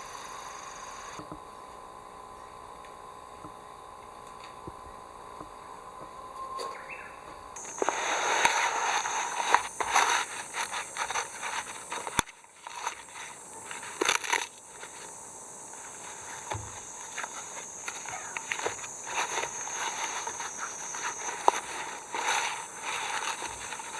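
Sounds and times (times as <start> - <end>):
crackling and rustling: 7.6 - 23.9.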